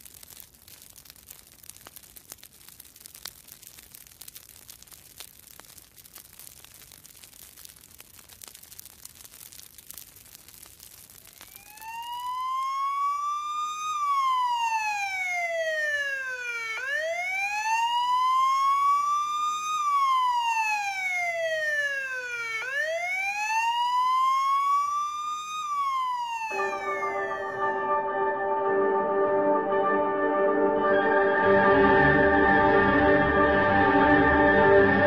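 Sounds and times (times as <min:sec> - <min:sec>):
siren wailing: 0:11.2 - 0:35.0
music with sustained tones: 0:27.0 - 0:35.0.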